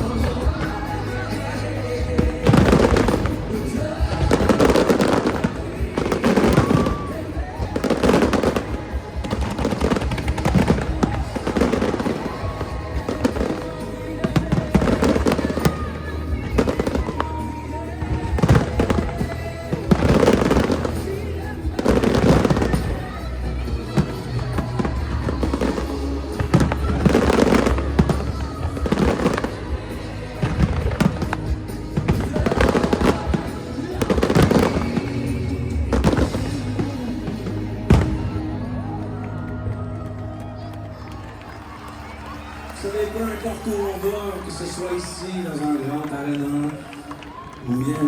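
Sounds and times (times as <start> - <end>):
fireworks bursting and crackling: 0.0 - 48.0
music soundtrack: 0.0 - 48.0.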